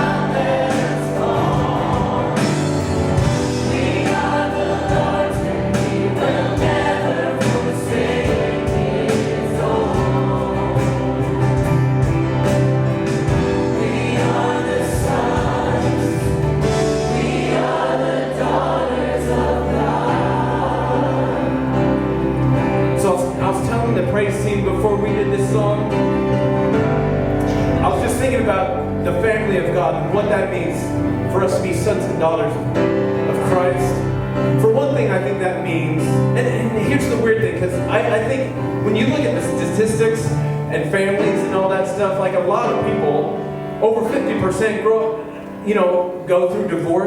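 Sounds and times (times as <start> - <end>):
choir singing worship song: 0.0 - 47.0
instrumental accompaniment: 0.0 - 47.0.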